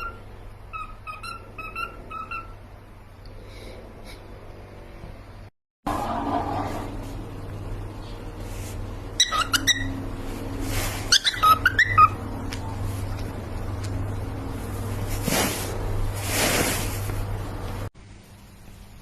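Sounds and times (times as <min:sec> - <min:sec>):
cockatiel chirping: 0:00.0 - 0:02.6, 0:09.2 - 0:10.0, 0:11.1 - 0:12.2
steady low hum: 0:00.0 - 0:19.0
hissy rustling noises: 0:10.0 - 0:11.6, 0:12.2 - 0:17.9.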